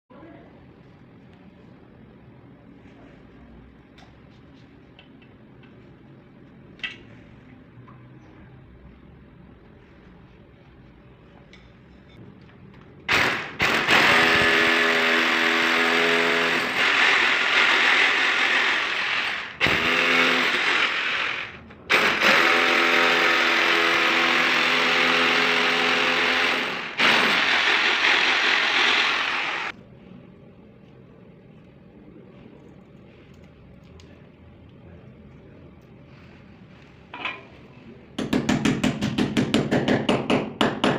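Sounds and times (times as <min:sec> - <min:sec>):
electric drill running: 0:13.1 - 0:29.7.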